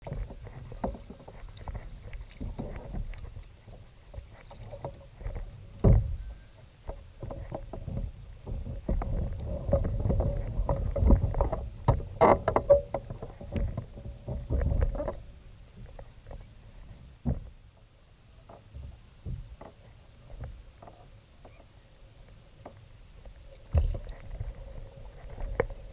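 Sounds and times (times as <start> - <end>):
kayak knocks and bumps: 17.2 - 17.6, 18.5 - 19.8, 23.7 - 24.5.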